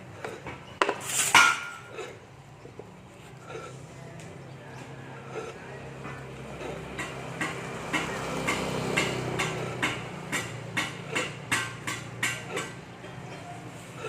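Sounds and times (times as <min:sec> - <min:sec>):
hammer tapping on metal: 0:06.0 - 0:13.5.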